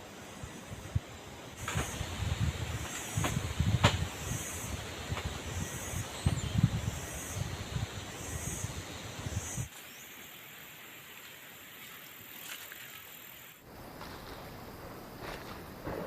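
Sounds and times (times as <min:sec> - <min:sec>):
steady outdoor hiss: 0:00.0 - 0:16.0
wind buffeting microphone: 0:00.7 - 0:09.7.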